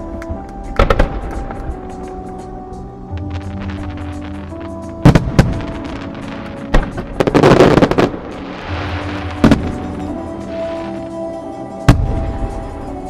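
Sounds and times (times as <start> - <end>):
fireworks crackling: 0.0 - 11.2
show music: 0.0 - 13.0
fireworks bangs: 3.2 - 11.0.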